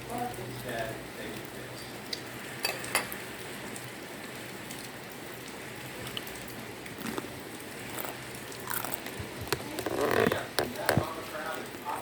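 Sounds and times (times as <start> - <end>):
chewing and mouth clicks: 6.1 - 11.1.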